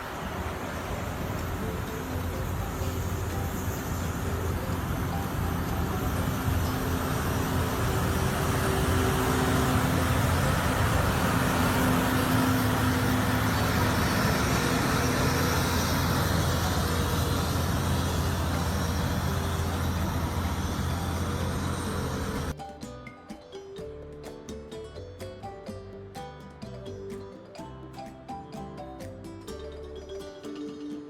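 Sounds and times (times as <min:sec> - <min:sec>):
heavy truck engine running: 0:00.0 - 0:22.6
road noise: 0:00.0 - 0:22.6.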